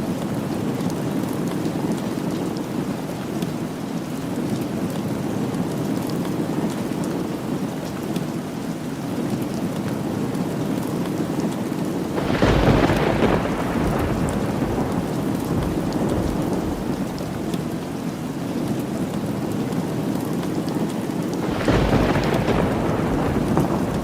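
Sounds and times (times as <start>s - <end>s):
steady rain falling: 0.0s - 24.0s
thunder rolling: 12.2s - 17.6s, 21.4s - 24.0s.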